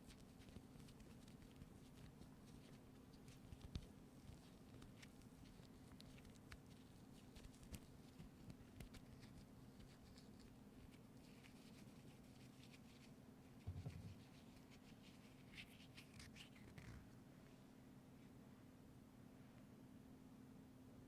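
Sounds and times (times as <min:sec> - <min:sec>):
faint scratching: 0:00.0 - 0:17.6
light tapping on object: 0:13.6 - 0:14.2
soft low thump: 0:13.6 - 0:14.2.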